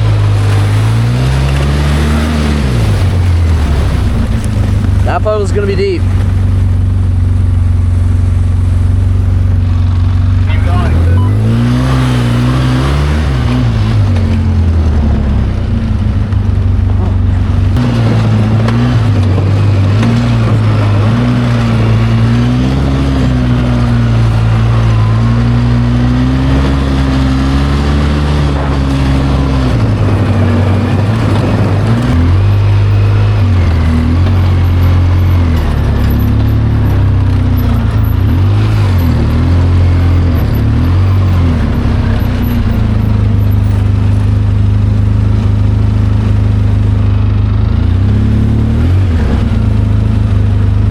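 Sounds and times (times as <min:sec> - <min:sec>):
atv engine revving: 0:00.0 - 0:50.9.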